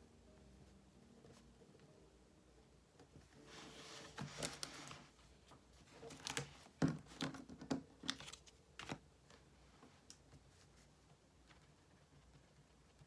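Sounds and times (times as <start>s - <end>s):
paper rustle: 3.4s - 11.6s.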